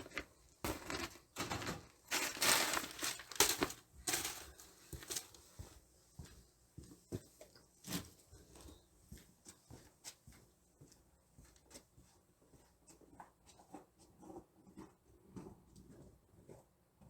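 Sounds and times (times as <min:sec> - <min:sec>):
crinkling handling noise: 0:00.0 - 0:05.8.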